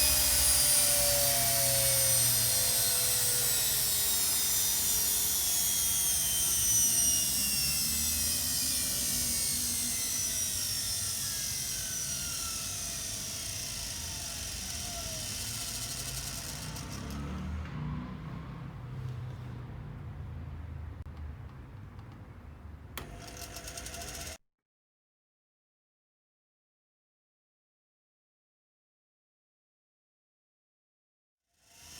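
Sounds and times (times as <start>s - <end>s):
washing machine motor spinning down: 0.0s - 18.9s, 23.0s - 24.4s.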